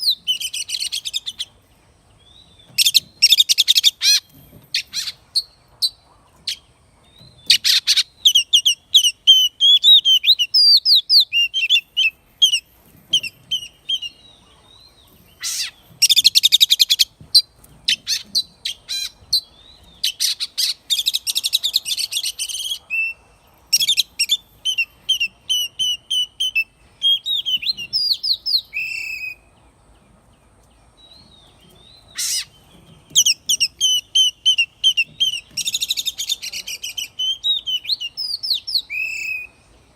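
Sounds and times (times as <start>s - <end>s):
bird singing whistled phrases: 7.6s - 12.6s, 23.8s - 29.4s, 33.1s - 39.6s
harsh rasping bird calls: 15.2s - 29.3s, 31.8s - 39.5s.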